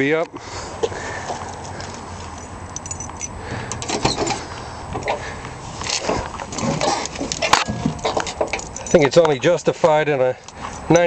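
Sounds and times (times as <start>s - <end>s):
keys jangling: 2.3s - 4.2s, 7.3s - 9.2s.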